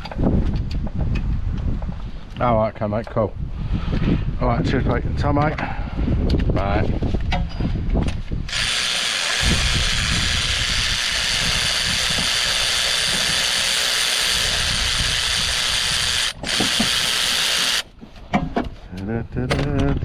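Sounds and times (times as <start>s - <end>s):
tool clicking and whirring: 8.1s - 18.0s.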